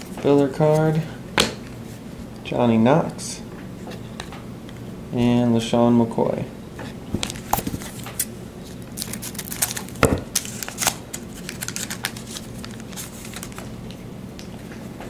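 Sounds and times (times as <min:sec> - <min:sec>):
wrapper crinkling and tearing: 0:07.3 - 0:14.0.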